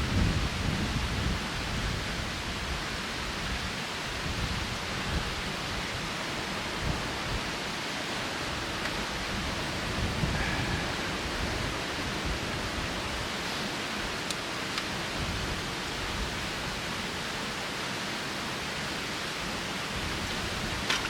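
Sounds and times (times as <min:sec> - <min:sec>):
gusty wind buffeting microphone: 0:00.0 - 0:07.7, 0:08.3 - 0:14.3, 0:14.9 - 0:16.9.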